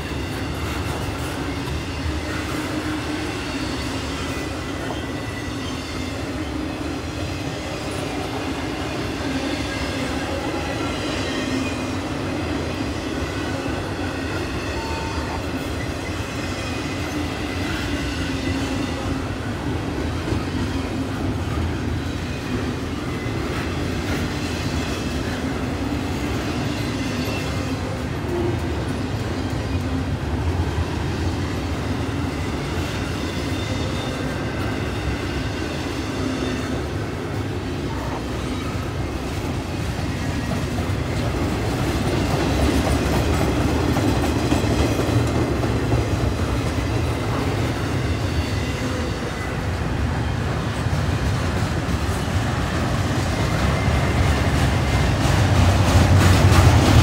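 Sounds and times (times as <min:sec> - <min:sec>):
freight train rumbling past: 0:00.0 - 0:57.0
wheels clacking over rail joints: 0:50.5 - 0:57.0.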